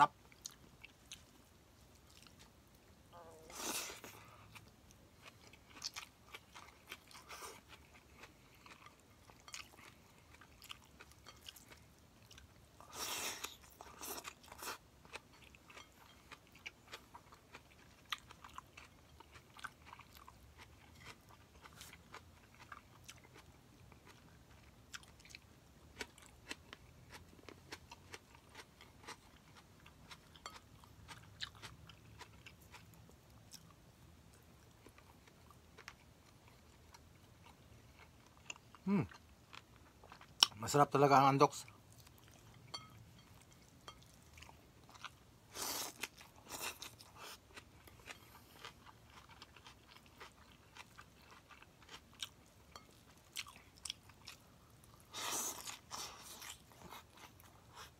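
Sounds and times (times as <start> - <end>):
chewing and mouth clicks: 13.4 - 40.6, 41.6 - 57.9.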